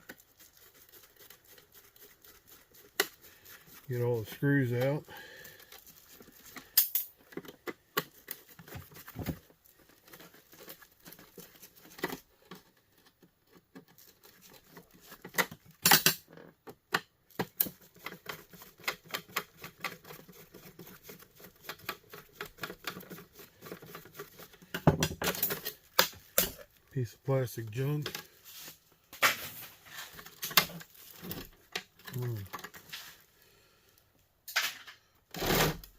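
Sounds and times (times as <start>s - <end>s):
plastic parts clattering: 21.7s - 26.8s.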